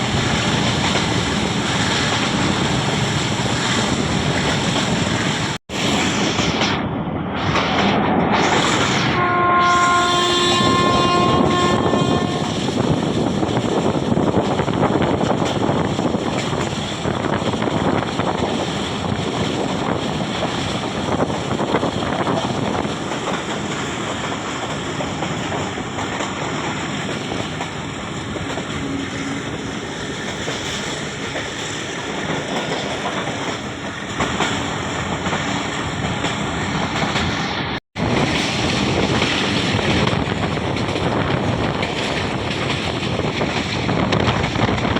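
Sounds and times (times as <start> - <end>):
moving train rushing: 0.0 - 44.9
wind on microphone: 0.0 - 44.9
train horn: 9.0 - 12.8, 28.7 - 29.7.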